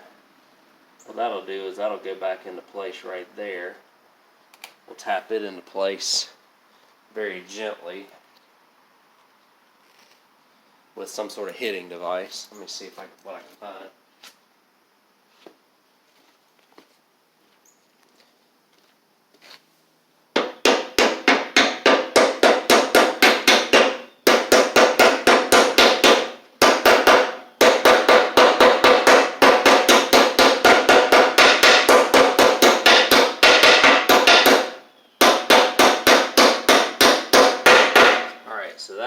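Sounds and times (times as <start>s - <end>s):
hammer tapping on metal: 20.4s - 38.4s.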